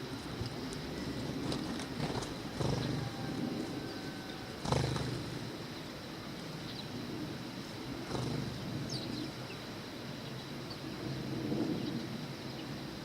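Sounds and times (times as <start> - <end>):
low outdoor rumble: 0.0 - 13.0
sparrow chirps: 2.0 - 3.2, 8.0 - 11.1.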